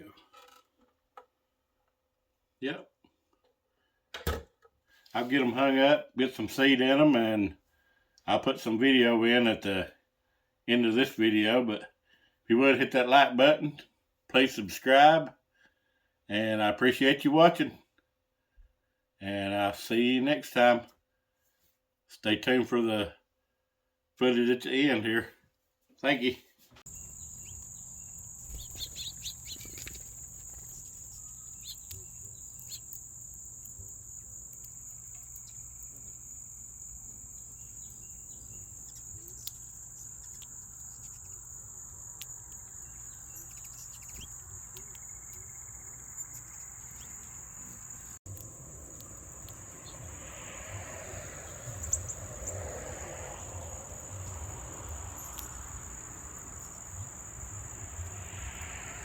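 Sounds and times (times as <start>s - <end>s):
faint bird chirps: 26.9s - 48.2s, 50.8s - 54.4s
high-pitched insect chorus: 26.9s - 59.0s.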